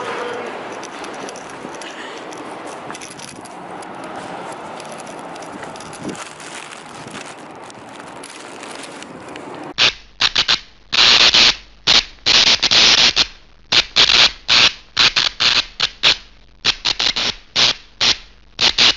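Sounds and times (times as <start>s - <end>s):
street and wind noise: 0.0s - 18.9s
hissy static bursts: 9.7s - 18.9s.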